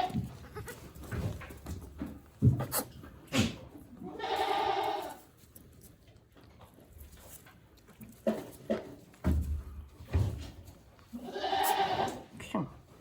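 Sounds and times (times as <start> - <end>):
goat bleating: 0.0 - 1.0, 4.0 - 5.3, 11.1 - 12.3.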